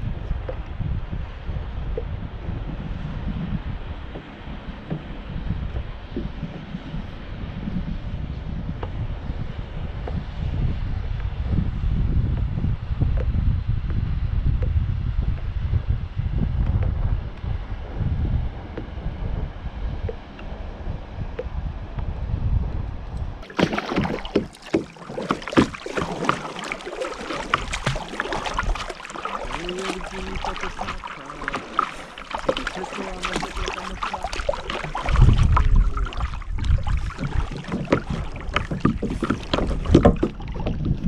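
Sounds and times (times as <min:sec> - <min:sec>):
wind gusts on microphone: 0:00.0 - 0:41.0
paddle splashing and knocking: 0:04.0 - 0:07.2, 0:23.4 - 0:41.0.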